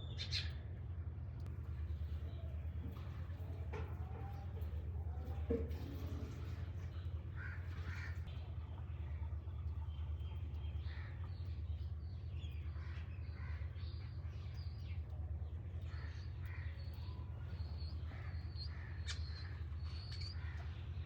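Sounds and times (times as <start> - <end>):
steady low hum: 0.0 - 21.0
crows cawing: 7.4 - 8.2.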